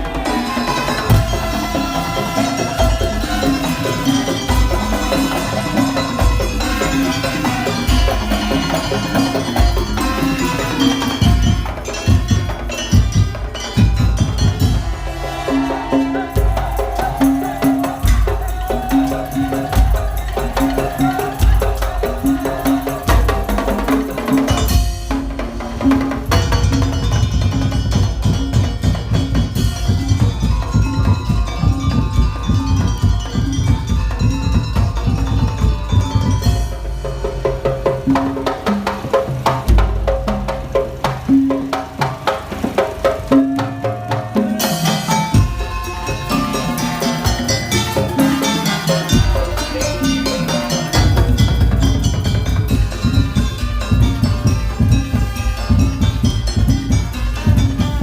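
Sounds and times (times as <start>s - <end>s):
heavy bass drum strokes: 0.0s - 58.0s
wooden percussion: 0.0s - 58.0s
metallophone melody: 0.1s - 42.2s, 42.8s - 58.0s
held melody notes: 44.5s - 58.0s.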